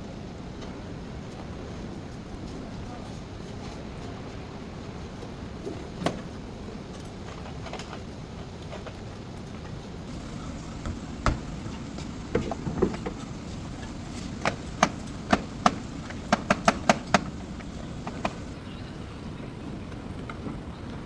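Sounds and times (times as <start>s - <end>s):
steady low background noise: 0.0s - 21.0s
sharp clicks and knocks: 10.1s - 18.6s.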